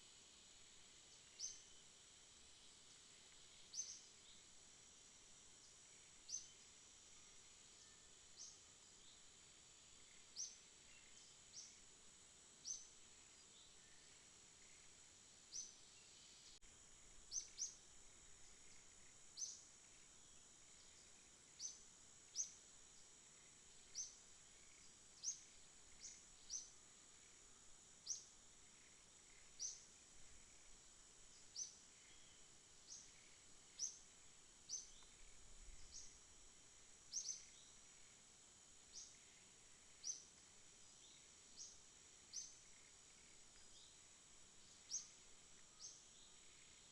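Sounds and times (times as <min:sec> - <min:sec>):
high insect drone: 0:00.0 - 0:46.9.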